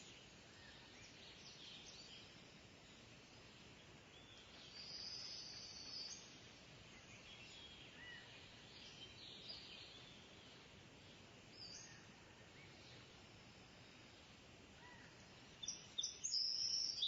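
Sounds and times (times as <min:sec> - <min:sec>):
faint background hiss: 0:00.0 - 0:17.0.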